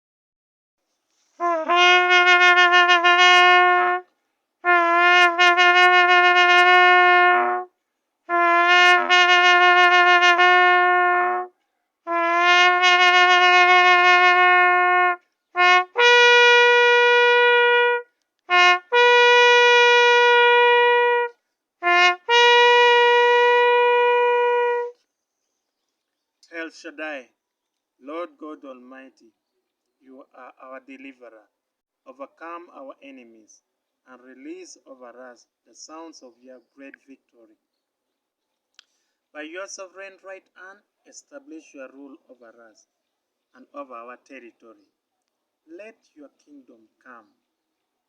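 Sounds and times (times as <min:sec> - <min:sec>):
shofar horn blasts: 0:01.4 - 0:07.7, 0:08.3 - 0:25.0.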